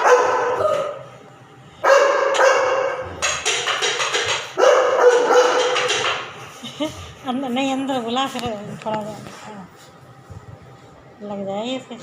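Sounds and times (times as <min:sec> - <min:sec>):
dog barking: 0:00.0 - 0:01.0, 0:01.8 - 0:03.2, 0:04.5 - 0:06.0.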